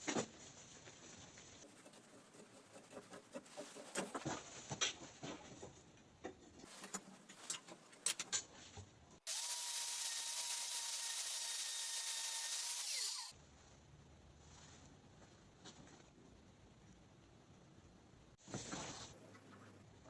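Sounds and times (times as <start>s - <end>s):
angle grinder whining: 9.3s - 13.3s.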